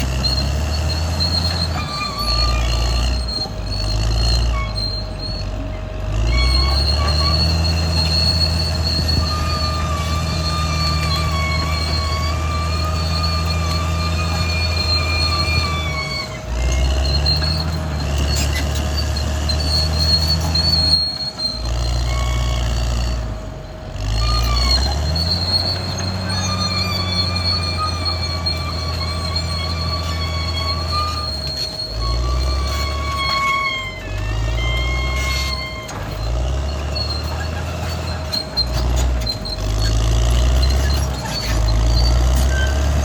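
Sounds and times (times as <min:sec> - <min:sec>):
bulldozer diesel engine running: 0:00.0 - 0:43.0
steel tracks squealing: 0:00.0 - 0:43.0.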